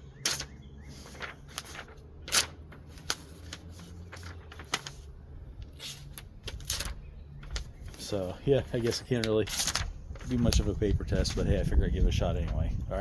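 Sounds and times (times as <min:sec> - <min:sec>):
knife ripping paper: 0:00.3 - 0:05.1, 0:05.7 - 0:07.6, 0:08.7 - 0:10.6.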